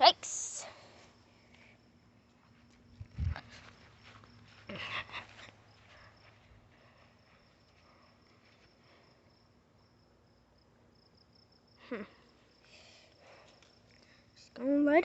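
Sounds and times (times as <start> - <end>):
crickets chirring: 5.4 - 14.6.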